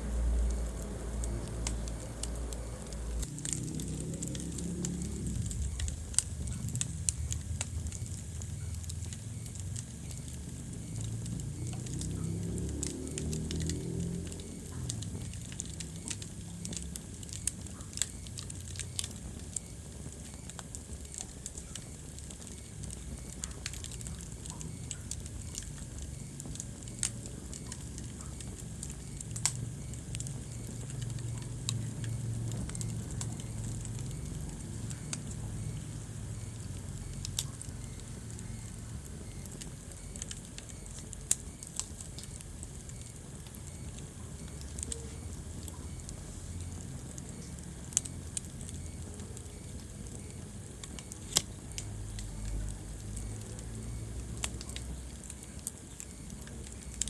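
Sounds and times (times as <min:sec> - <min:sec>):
low rumble: 0:00.0 - 0:15.7
wood fire crackling in fireplace: 0:00.0 - 0:57.0.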